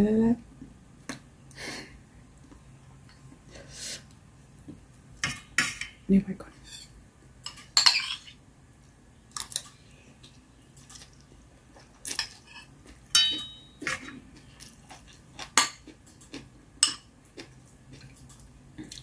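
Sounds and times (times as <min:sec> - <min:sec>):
ringing clink: 0:13.2 - 0:13.8.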